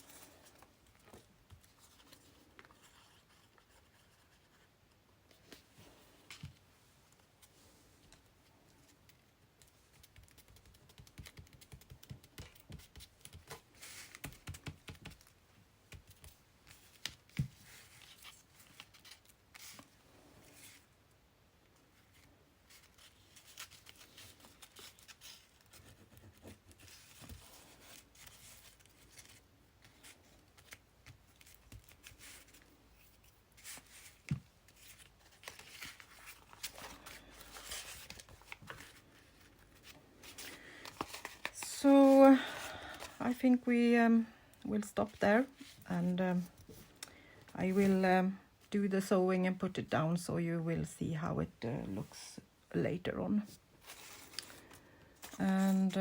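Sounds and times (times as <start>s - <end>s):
paper rustling and scraping: 22.0s - 43.4s, 53.8s - 56.0s.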